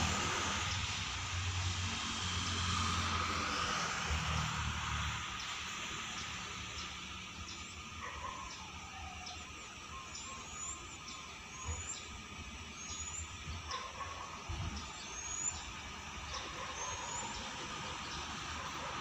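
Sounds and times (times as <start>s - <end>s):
bird rising chirp: 7.4s - 13.8s
wavering whistled bird notes: 8.4s - 13.4s.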